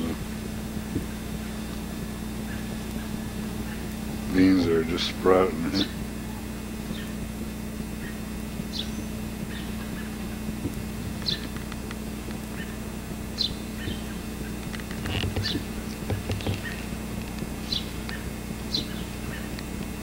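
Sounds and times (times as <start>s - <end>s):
steady low hum: 0.0s - 20.0s
bird chirping: 5.7s - 7.2s, 8.0s - 10.5s, 11.2s - 11.7s, 12.5s - 17.0s, 17.6s - 19.6s.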